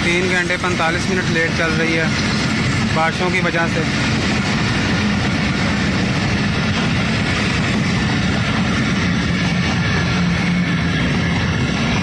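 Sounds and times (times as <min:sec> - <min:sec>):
train wheels rumbling and clattering: 0:00.0 - 0:12.0.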